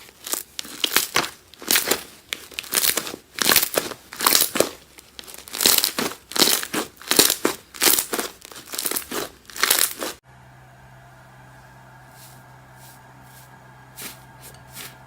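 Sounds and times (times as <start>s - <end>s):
slime crackling when squeezed: 0.2s - 10.2s
quiet steady hum: 10.2s - 15.0s.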